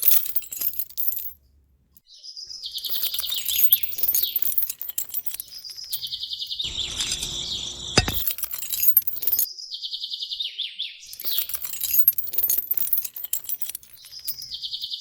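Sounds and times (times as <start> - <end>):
small birds chirping: 2.1 - 12.6, 13.5 - 15.0.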